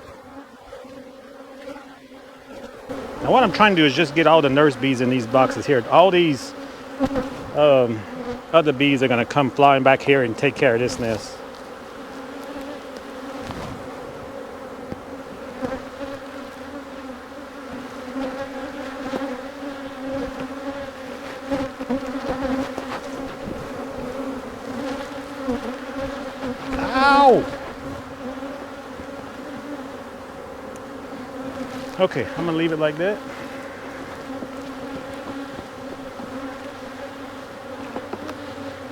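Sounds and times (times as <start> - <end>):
bees buzzing: 0.0 - 38.9
man crying out in pain: 26.8 - 27.6.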